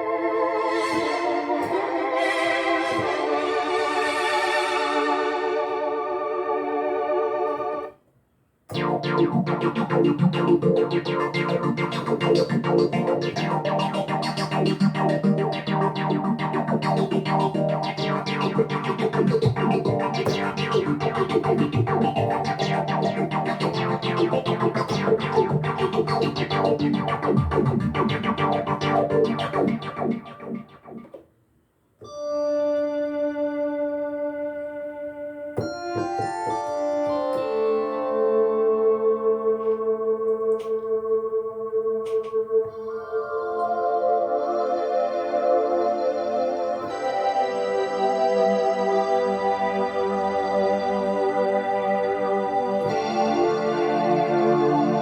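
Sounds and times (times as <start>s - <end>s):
busy keyboard passage: 8.7s - 31.2s
synthesizer held chord: 8.7s - 31.2s, 32.3s - 55.0s.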